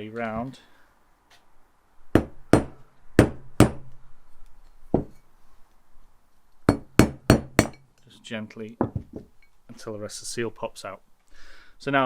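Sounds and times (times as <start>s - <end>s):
hammer tapping on metal tool: 2.2s - 4.0s, 6.7s - 7.8s.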